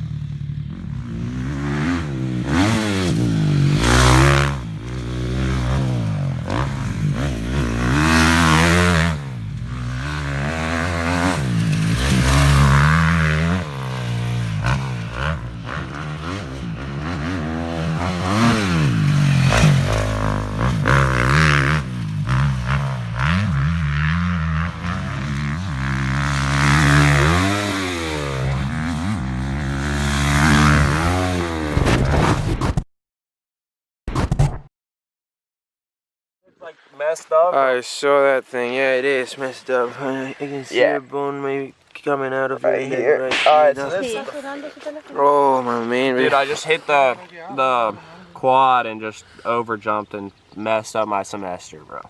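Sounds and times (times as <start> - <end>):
dirt bike engine revving: 0.0 - 32.2.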